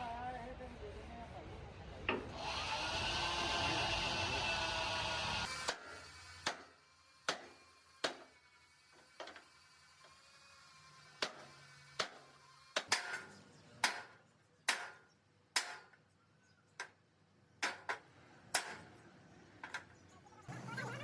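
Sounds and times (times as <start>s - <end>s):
hammer striking steel: 12.8s - 15.0s, 15.6s - 15.9s.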